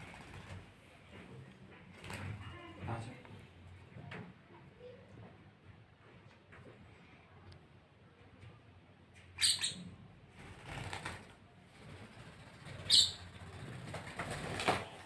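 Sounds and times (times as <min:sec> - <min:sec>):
birds chirping: 0:12.6 - 0:13.8.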